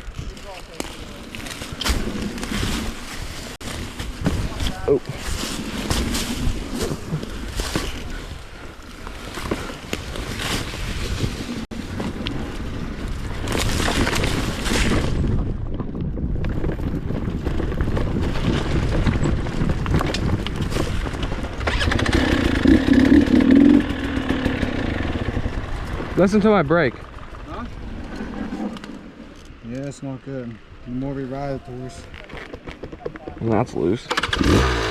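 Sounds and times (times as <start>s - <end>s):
dirt bike engine running: 14.9s - 29.2s.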